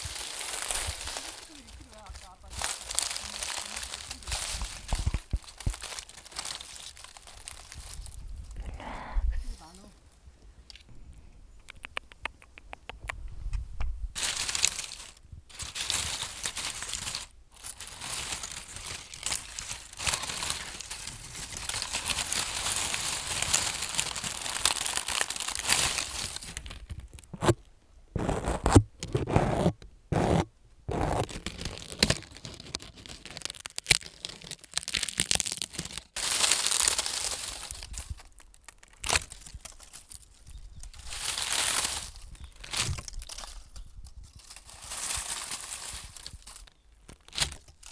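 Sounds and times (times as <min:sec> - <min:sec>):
crinkling and scratching on microphone: 0:00.0 - 0:10.9, 0:11.7 - 0:36.2.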